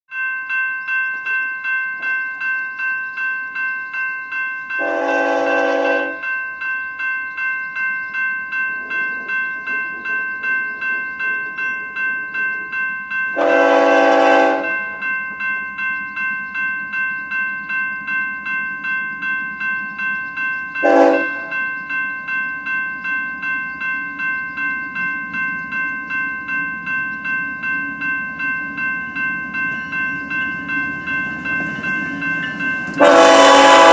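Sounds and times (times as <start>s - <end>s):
crossing bell ringing: 0.1s - 33.9s
locomotive air horn: 4.8s - 6.2s, 13.4s - 14.7s, 20.8s - 21.5s, 33.0s - 33.9s
train rumble: 7.7s - 33.9s.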